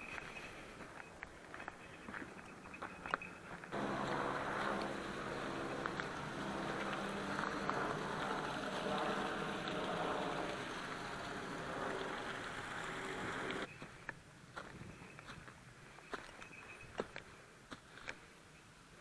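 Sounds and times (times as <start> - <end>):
mechanical hum with hiss: 3.8 - 13.7.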